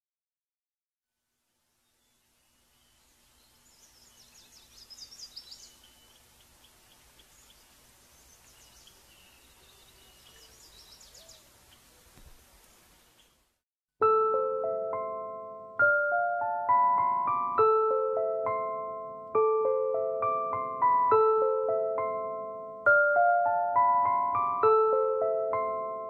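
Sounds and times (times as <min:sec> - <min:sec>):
low steady hiss: 0:01.1 - 0:13.6
small birds chirping: 0:01.7 - 0:13.6.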